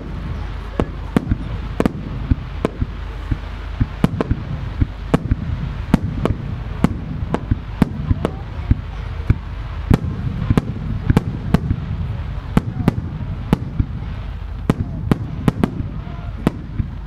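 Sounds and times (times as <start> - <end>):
firework shells bursting: 0.0 - 17.0
steady low rumble: 0.0 - 17.0.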